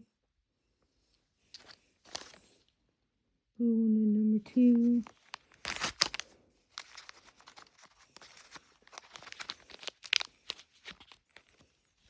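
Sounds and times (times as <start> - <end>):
plastic wrapping tearing and crinkling: 1.6 - 2.6, 4.8 - 11.7.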